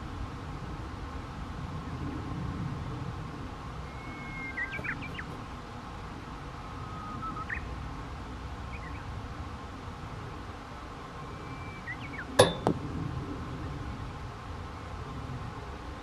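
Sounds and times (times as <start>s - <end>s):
low outdoor rumble: 0.0s - 16.0s
whistled bird calls: 3.8s - 5.4s, 6.6s - 7.7s, 8.7s - 9.1s, 11.2s - 12.4s.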